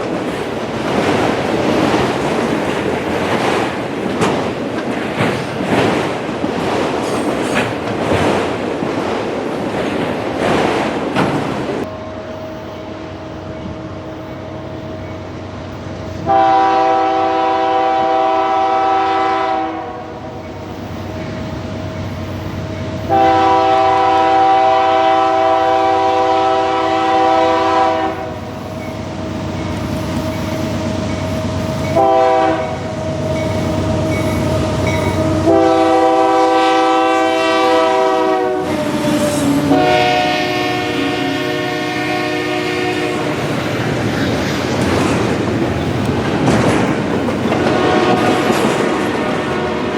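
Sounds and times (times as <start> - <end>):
train running noise: 0.0 - 49.9
locomotive air horn blasts: 16.2 - 20.2, 23.1 - 28.4, 31.9 - 32.8, 35.4 - 43.4, 47.6 - 48.5, 49.5 - 49.9.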